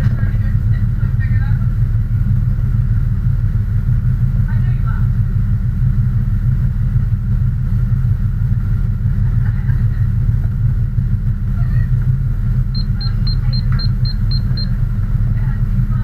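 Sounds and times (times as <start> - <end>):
vehicle engine idling: 0.0 - 16.0
rapid high electronic beeps: 12.8 - 14.8.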